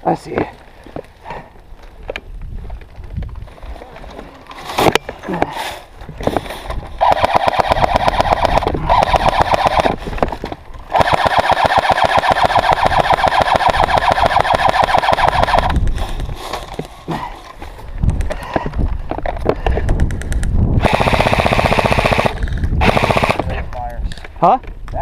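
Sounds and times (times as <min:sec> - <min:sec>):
airsoft gun rapid fire: 0:07.0 - 0:10.0, 0:10.9 - 0:15.8, 0:20.8 - 0:23.5
sharp clicks: 0:07.0 - 0:10.0, 0:10.9 - 0:15.8, 0:19.9 - 0:23.9.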